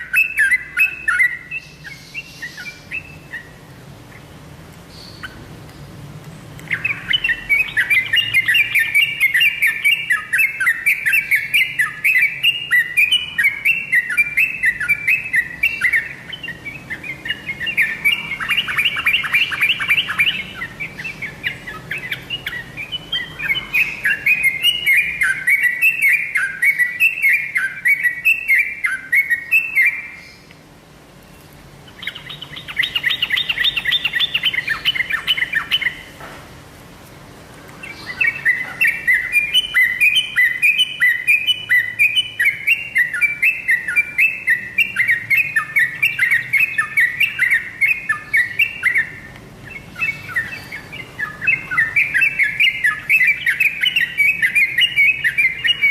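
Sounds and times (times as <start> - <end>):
fast chattering bird phrase: 6.7 - 30.2, 31.9 - 36.1, 37.9 - 55.9.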